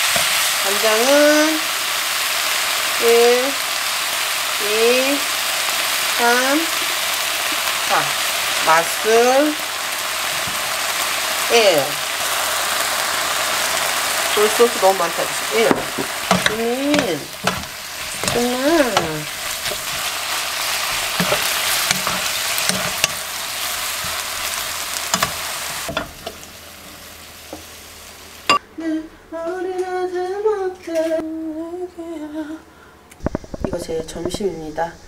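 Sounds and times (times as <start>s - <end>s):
food sizzling in a wok: 0.0s - 28.6s
wooden spoon scraping a pan: 15.6s - 26.0s.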